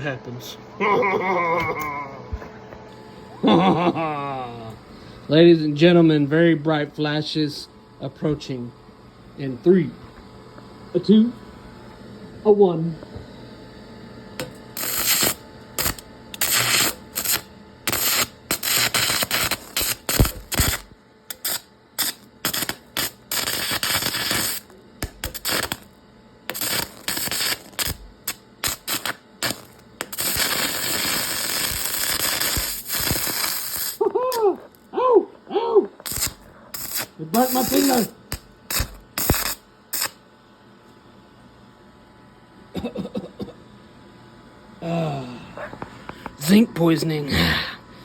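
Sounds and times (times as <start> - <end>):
welding arc crackling and sputtering: 14.4 - 34.9, 36.0 - 40.2, 46.1 - 47.5.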